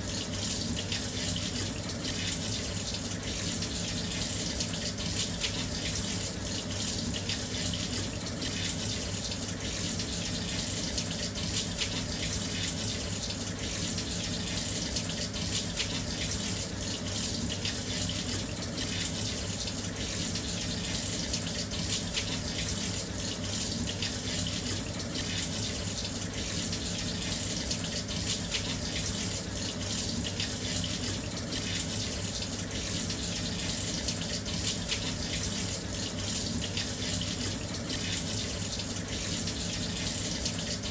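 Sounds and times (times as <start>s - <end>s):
water rushing into washing machine: 0.0s - 40.9s.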